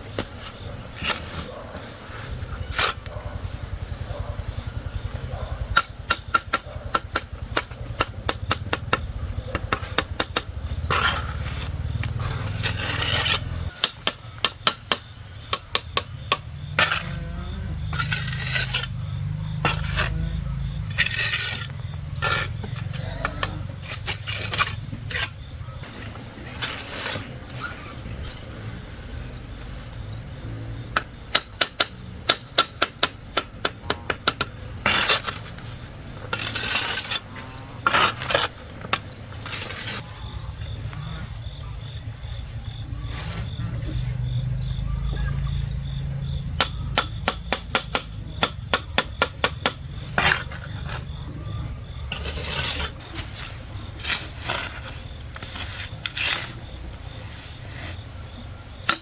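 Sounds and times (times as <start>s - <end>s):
construction knocking: 5.4s - 10.9s.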